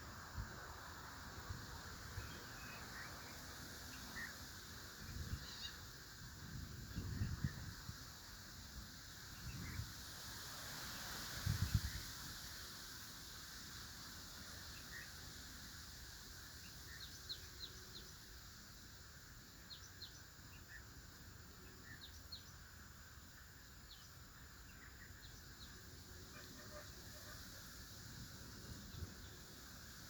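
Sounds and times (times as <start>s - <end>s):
outdoor background hiss: 0.0s - 30.0s
faint high bird chirps: 5.2s - 5.8s.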